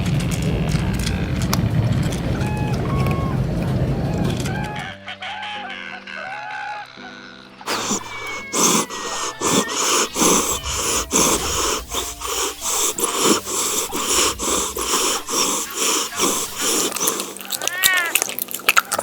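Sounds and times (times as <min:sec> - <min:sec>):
small animal wheezy sniffing: 0:07.7 - 0:19.0.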